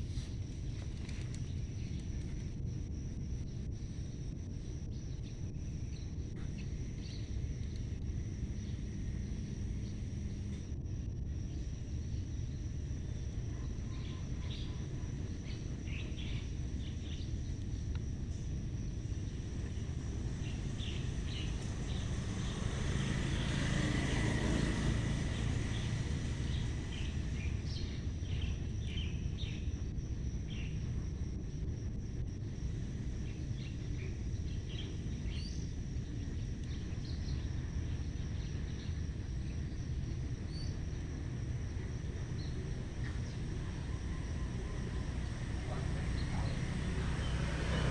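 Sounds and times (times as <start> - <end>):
constant thin high tone: 0.0 - 47.9
steady low rumble: 0.0 - 47.9
broad swell of noise: 19.8 - 28.4.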